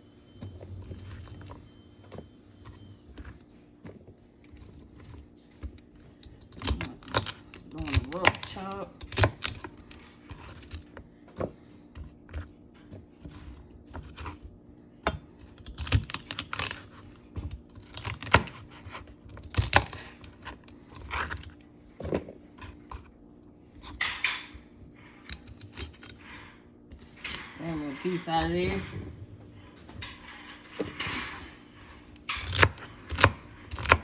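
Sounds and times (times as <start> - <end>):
knife chopping celery on board: 32.4 - 34.0.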